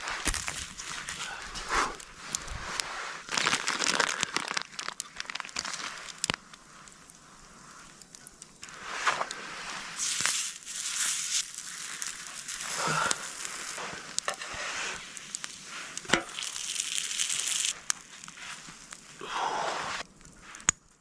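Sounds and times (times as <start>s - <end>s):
sharp crackles and clicks: 0.0s - 21.0s
food sizzling on a griddle: 8.7s - 19.2s.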